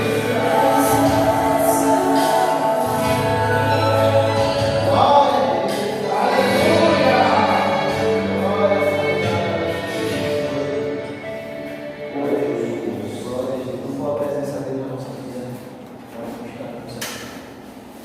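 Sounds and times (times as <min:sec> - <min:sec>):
choir singing: 0:00.0 - 0:11.5
band playing gospel music: 0:00.0 - 0:13.5.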